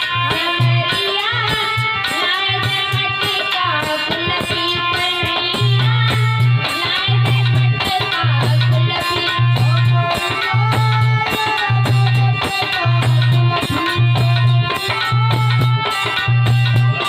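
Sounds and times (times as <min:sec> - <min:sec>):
low drum beat: 0:05.5 - 0:17.0.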